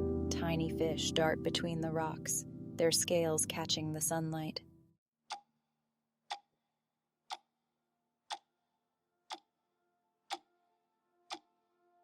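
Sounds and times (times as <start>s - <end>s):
sharp clock-like ticks: 6.3s - 6.5s, 7.3s - 7.5s, 8.3s - 8.5s.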